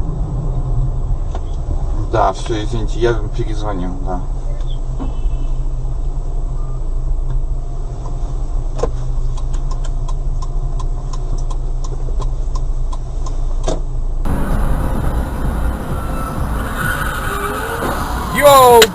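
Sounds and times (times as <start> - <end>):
brighter car rumble: 0.0 - 18.9
car engine and road noise: 0.0 - 18.9
light regular ticks: 9.2 - 13.4.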